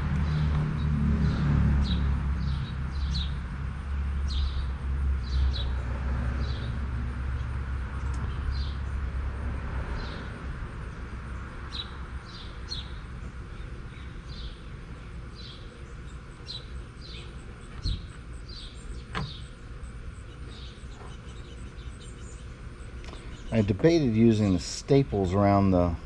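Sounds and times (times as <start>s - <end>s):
small bird chirping: 11.7s - 23.8s.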